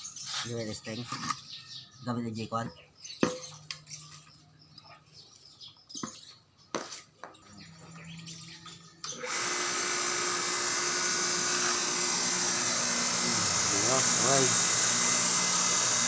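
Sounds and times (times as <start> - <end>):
grass cutter motor running: 9.0 - 16.0.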